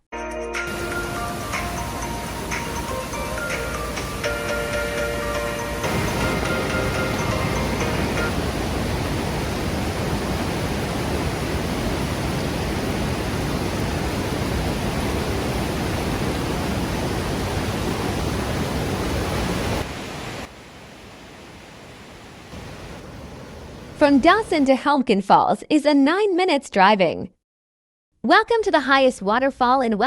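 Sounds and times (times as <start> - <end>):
waterfall rushing: 0.7 - 24.7.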